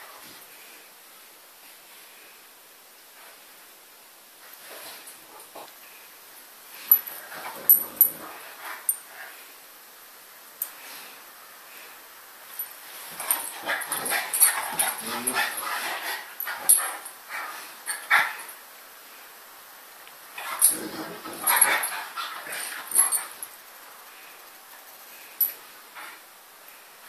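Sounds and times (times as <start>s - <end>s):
dogs whimpering and grunting: 13.2s - 18.6s, 20.4s - 23.5s.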